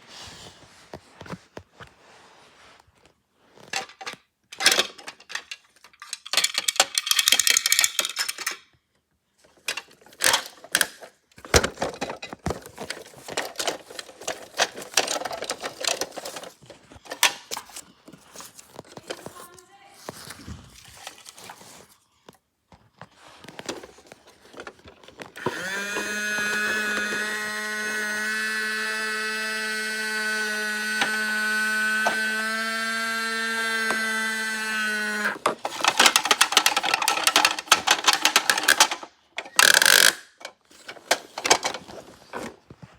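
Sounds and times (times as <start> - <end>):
small electric motor whining: 25.4 - 36.1.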